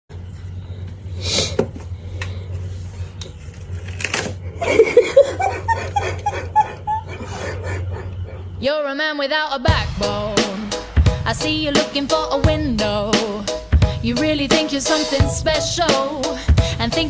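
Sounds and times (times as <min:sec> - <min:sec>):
person laughing: 0:04.6 - 0:07.1.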